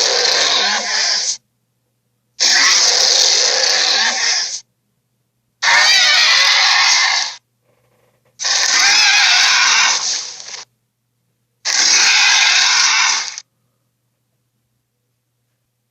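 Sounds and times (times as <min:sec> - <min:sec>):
dinosaur roars: 0:00.0 - 0:01.4, 0:02.4 - 0:04.6, 0:05.6 - 0:07.4, 0:08.4 - 0:10.5, 0:11.7 - 0:13.4.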